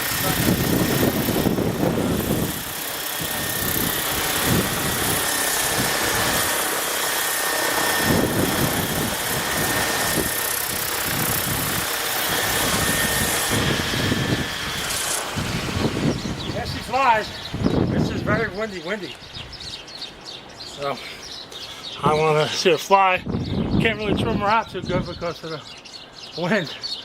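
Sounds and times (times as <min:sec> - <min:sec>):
wind buffeting microphone: 0:00.0 - 0:06.6, 0:07.9 - 0:19.9, 0:23.1 - 0:25.4
rc helicopter whine: 0:00.0 - 0:18.7.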